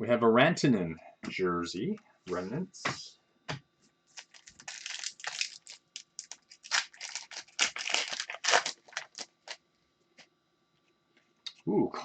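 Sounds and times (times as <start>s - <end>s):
foil wrapper crinkling and tearing: 4.2s - 9.6s.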